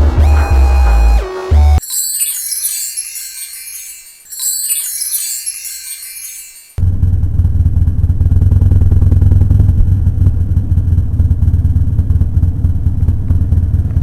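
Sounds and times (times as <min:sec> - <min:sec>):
chime music: 0:01.8 - 0:06.8
engine running low rumble: 0:06.8 - 0:14.0.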